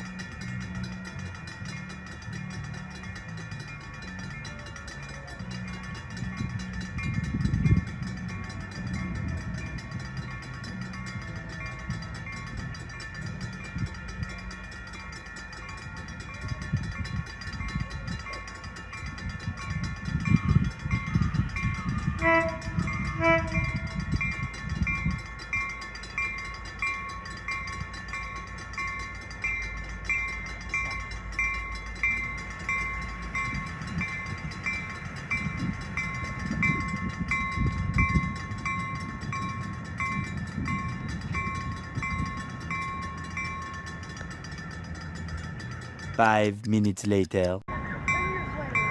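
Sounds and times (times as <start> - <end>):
railroad crossing bell ringing: 0.0 - 48.9
train rumble: 0.0 - 48.9
train horn toots: 22.0 - 24.3.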